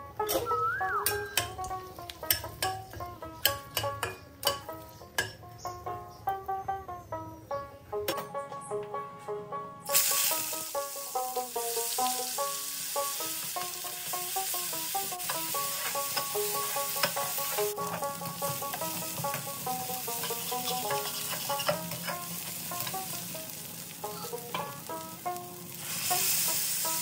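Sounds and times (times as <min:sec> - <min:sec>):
background music: 0:00.0 - 0:27.0
paste sizzling in oil: 0:09.9 - 0:27.0
spatula scraping pan: 0:15.2 - 0:23.2.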